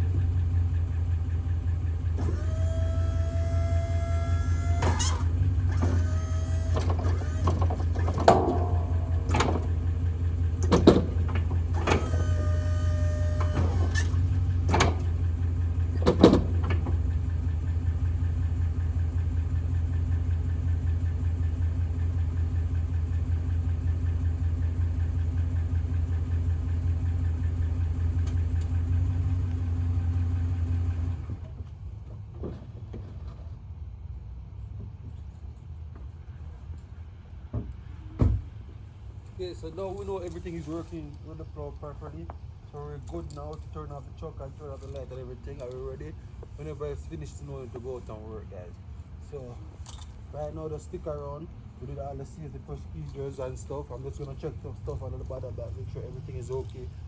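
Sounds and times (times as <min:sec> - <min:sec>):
pickup truck engine running: 0:00.0 - 0:57.0
hydraulic whines: 0:02.0 - 0:17.1.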